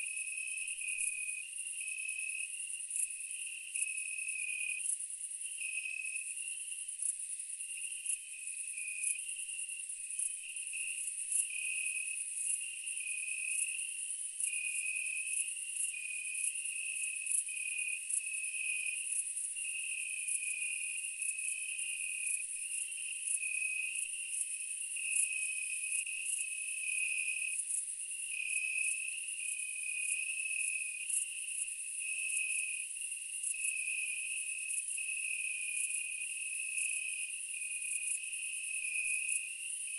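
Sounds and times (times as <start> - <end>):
pulsing cricket chirp: 24.8 - 39.9
high-pitched insect trill: 25.1 - 39.9.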